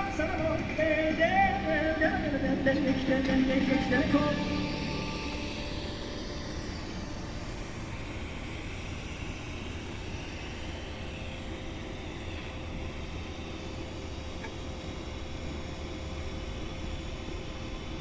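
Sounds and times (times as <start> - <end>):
faint constant tone: 0.0 - 18.0
welding hum and hiss: 0.0 - 18.0.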